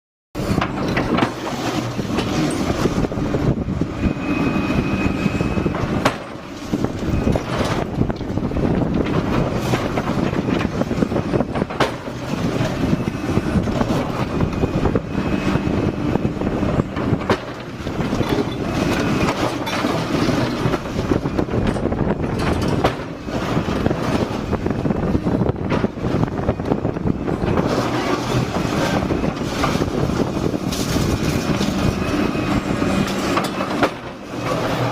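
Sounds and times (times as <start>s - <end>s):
excavator diesel engine under load: 0.4s - 34.9s
high hydraulic squeals: 4.0s - 6.1s.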